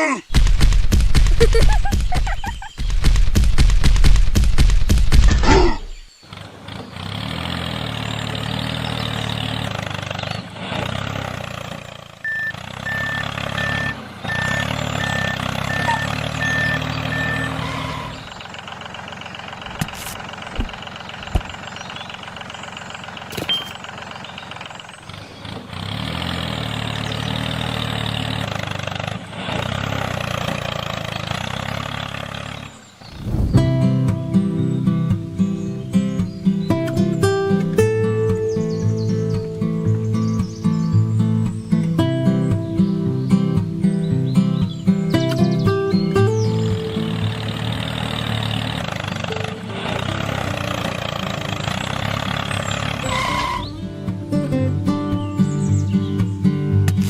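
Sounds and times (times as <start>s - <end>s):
vehicle engine running: 0.3s - 57.0s
short reversing beeps: 12.2s - 18.3s, 23.5s - 23.8s.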